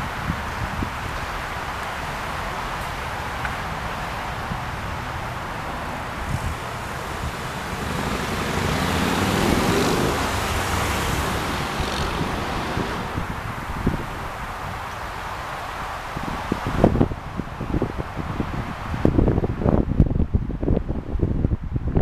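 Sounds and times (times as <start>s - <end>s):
wind buffeting microphone: 0.0s - 22.0s
vehicle passing: 2.0s - 15.5s.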